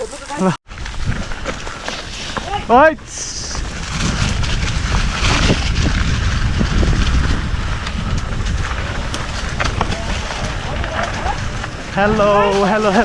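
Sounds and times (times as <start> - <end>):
bike rolling over dirt trail: 0.0 - 13.0
wind buffeting microphone: 0.7 - 13.0.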